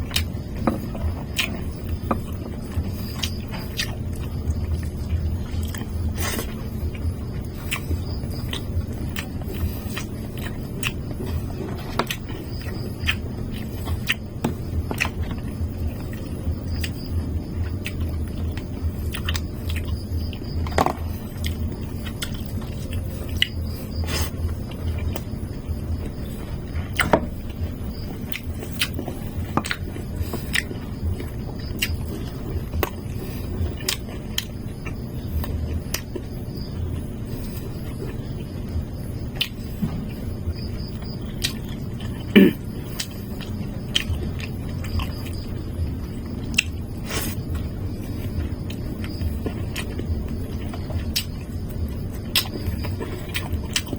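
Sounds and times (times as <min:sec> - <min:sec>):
steady low hum: 0:00.0 - 0:53.9
person chewing and biting food: 0:00.1 - 0:17.1, 0:17.7 - 0:27.6, 0:28.2 - 0:36.3, 0:39.4 - 0:39.6, 0:41.0 - 0:45.5, 0:46.4 - 0:53.9.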